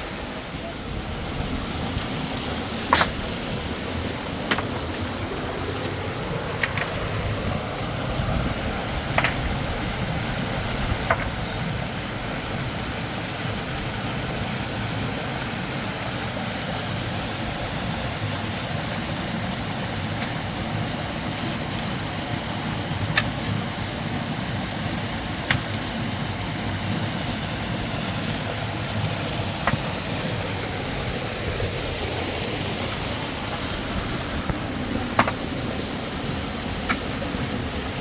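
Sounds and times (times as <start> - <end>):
river water rushing: 0.0 - 38.0
sharp knocks: 2.9 - 3.3, 35.1 - 35.5.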